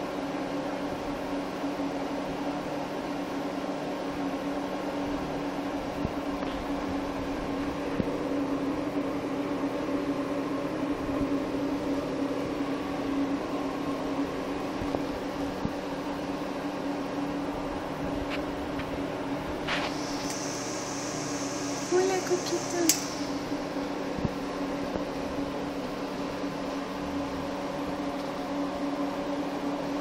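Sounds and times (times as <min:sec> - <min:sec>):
small motor humming: 0:19.7 - 0:23.8.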